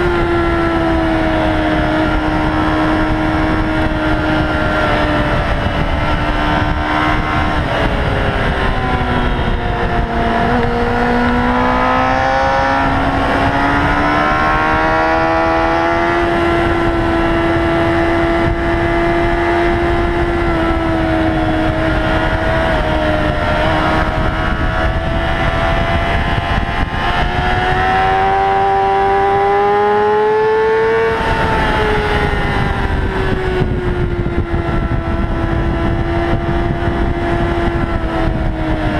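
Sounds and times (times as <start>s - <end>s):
motorcycle engine at high revs: 0.0s - 38.9s
wind rush: 0.0s - 38.9s.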